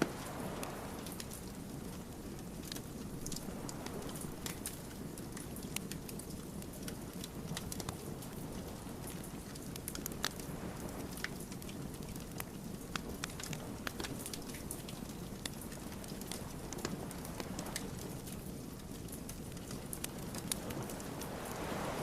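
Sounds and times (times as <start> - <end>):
logs crackling and popping: 0.0 - 22.0
wood fire burning: 0.0 - 22.0.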